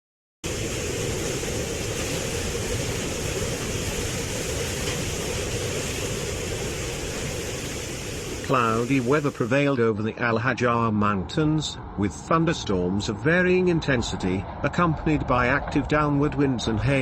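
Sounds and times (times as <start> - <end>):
flash flood water rushing: 0.4 - 9.8.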